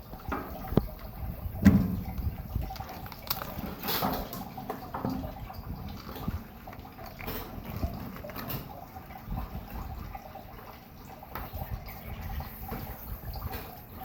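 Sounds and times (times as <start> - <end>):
running water splashing: 0.0 - 14.0
fish gutting wet handling: 0.2 - 14.0.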